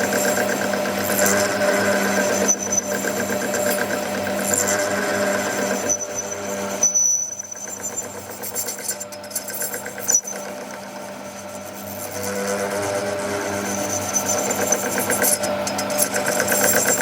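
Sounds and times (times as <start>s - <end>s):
machine humming with rhythmic chatter: 0.0s - 17.0s.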